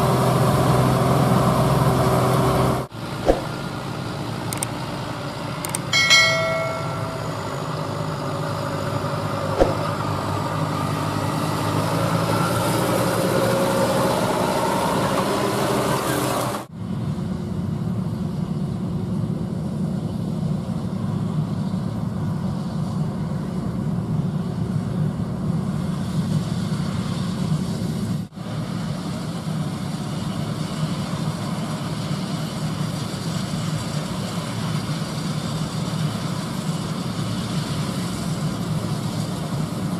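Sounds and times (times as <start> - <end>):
diesel machinery running: 0.0 - 25.8
metallic clang: 5.8 - 7.9, 9.6 - 10.0.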